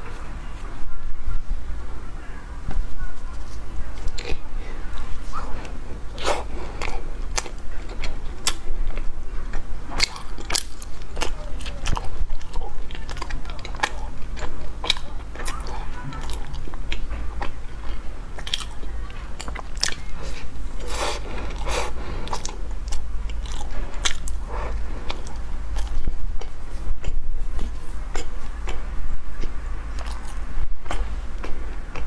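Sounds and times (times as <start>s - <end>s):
low steady hum: 0.0s - 32.0s
chewing flaky pastry: 2.6s - 32.0s.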